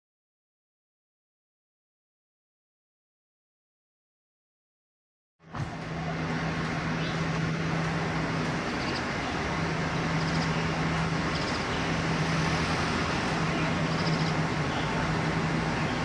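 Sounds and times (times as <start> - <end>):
low engine-like hum: 5.4 - 16.0
road traffic noise: 5.4 - 16.0.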